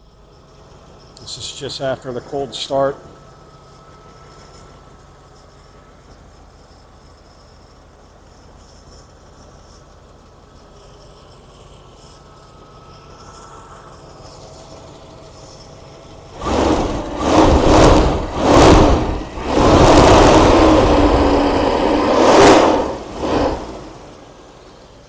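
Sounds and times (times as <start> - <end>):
loud rushing noise: 16.4 - 24.2.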